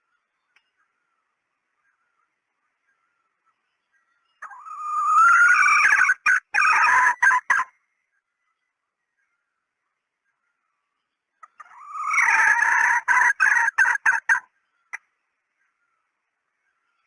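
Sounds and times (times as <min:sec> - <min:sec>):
junglefowl call: 0:04.4 - 0:07.8, 0:11.4 - 0:15.1.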